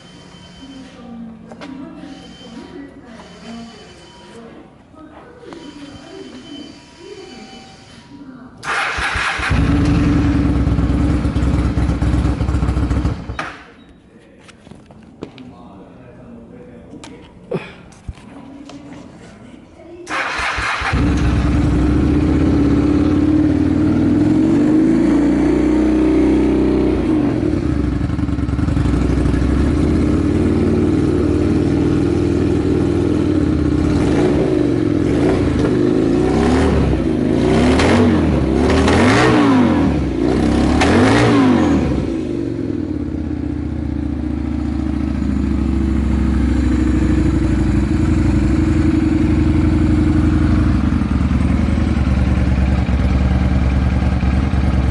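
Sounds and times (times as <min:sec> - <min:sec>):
engine revving in throttle blips: 0:08.6 - 0:13.4, 0:20.1 - 0:52.0
motorcycle engine idling: 0:08.7 - 0:13.8, 0:20.1 - 0:24.8, 0:25.7 - 0:37.3, 0:41.6 - 0:54.9.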